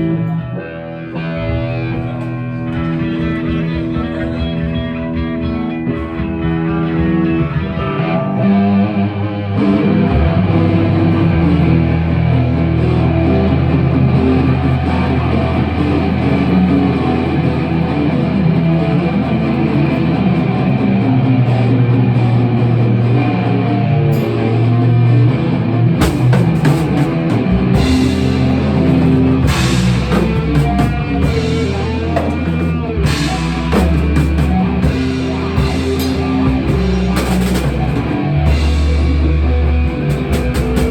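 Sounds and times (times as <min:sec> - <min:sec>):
rock music: 0:00.0 - 0:40.9
cymbals and drums: 0:26.0 - 0:40.9.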